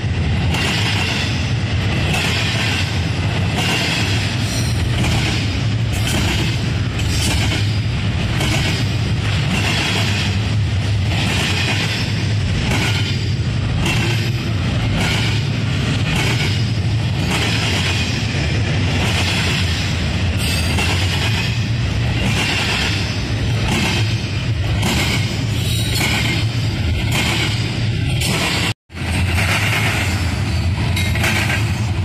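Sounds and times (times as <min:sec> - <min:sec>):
freight train rumbling past: 0:00.0 - 0:32.0
wheels clicking over rail joints: 0:18.9 - 0:32.0.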